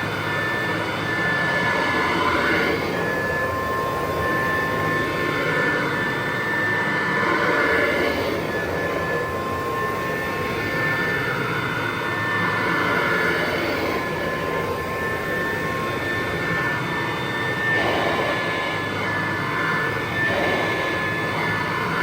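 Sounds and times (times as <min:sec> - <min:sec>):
vacuum cleaner motor whine: 0:00.0 - 0:22.0.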